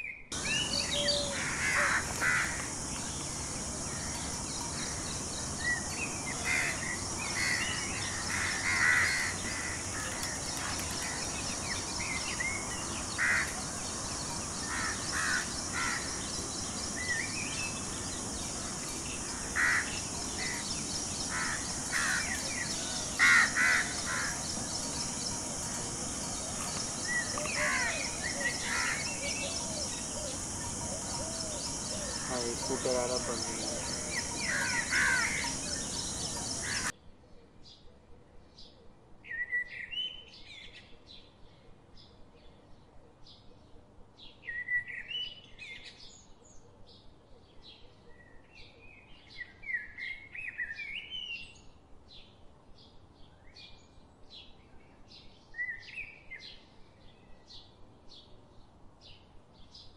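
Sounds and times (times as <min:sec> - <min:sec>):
birds harsh calls: 0:00.3 - 0:36.9
steady high hiss: 0:00.3 - 0:36.9.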